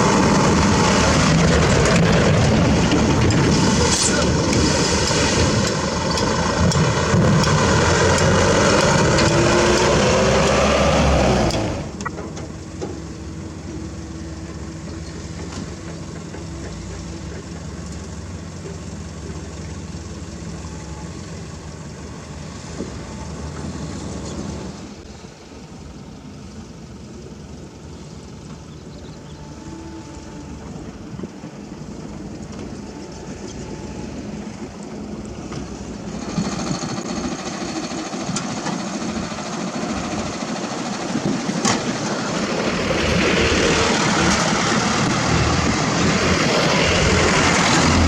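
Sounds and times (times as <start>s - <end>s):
diesel engine idling: 0.0s - 4.6s, 5.6s - 48.0s
heavy diesel engine running loud: 0.0s - 48.0s.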